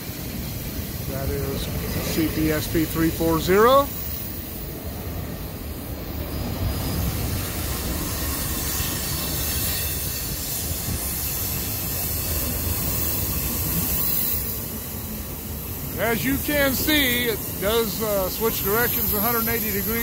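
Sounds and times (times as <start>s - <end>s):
train wheels rumbling on rail: 0.0s - 20.0s
high hiss: 5.6s - 20.0s.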